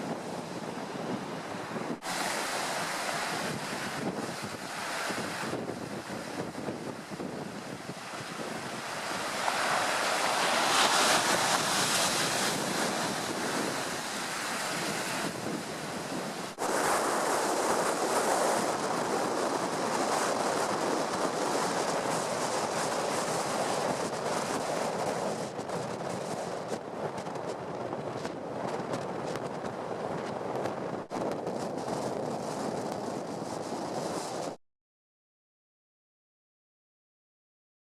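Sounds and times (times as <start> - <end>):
sea surf breaking: 0.0 - 26.8
wind buffeting microphone: 0.0 - 34.6.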